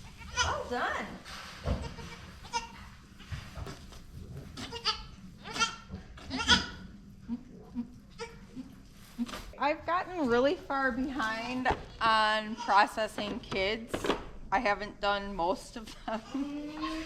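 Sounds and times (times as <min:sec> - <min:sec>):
goats bleating: 0:04.6 - 0:06.8.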